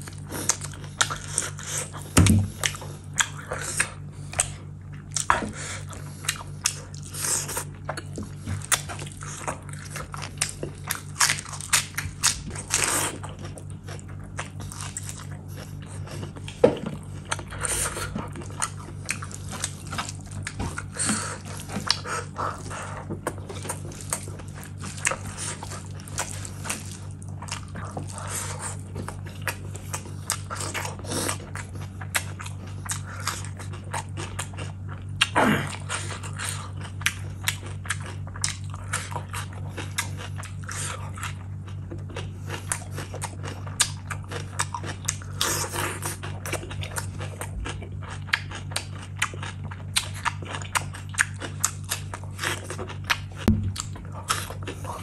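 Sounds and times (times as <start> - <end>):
wet chewing: 0.0 - 55.0
lip smacking and squelching: 42.6 - 55.0.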